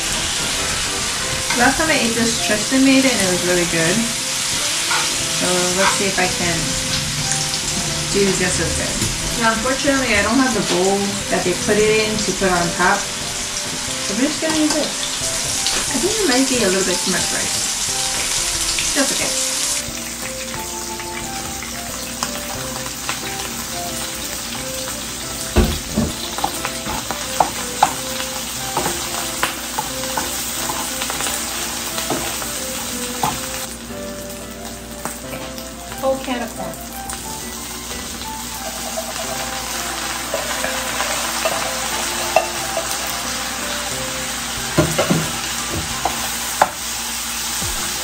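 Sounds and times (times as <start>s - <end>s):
rice sizzling in a skillet: 0.0s - 48.0s
wooden spatula scraping a pan: 0.3s - 17.7s.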